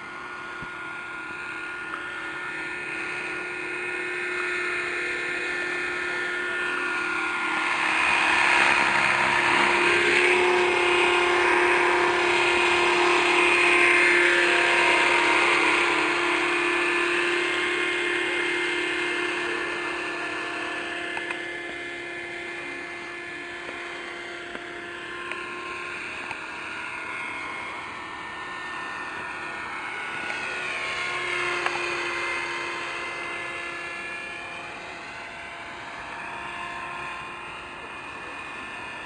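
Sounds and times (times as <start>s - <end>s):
rc helicopter whine: 0.0s - 39.0s.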